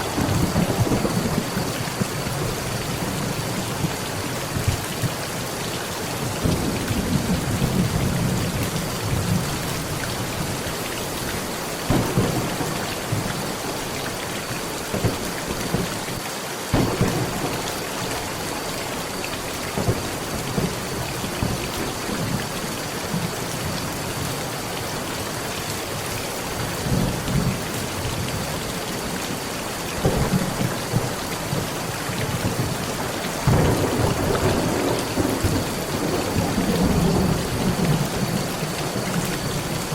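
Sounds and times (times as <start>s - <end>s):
thunder rumbling: 0.0s - 5.2s, 11.8s - 16.0s, 16.7s - 23.4s, 30.0s - 39.9s
heavy rain on a metal roof: 0.0s - 39.9s.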